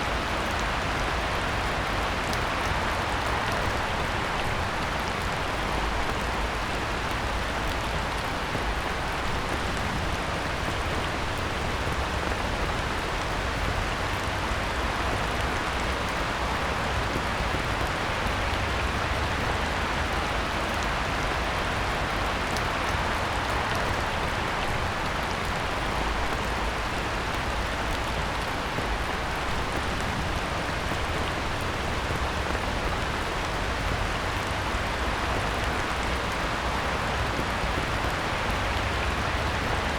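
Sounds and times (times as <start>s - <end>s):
heavy rain on water: 0.0s - 39.9s.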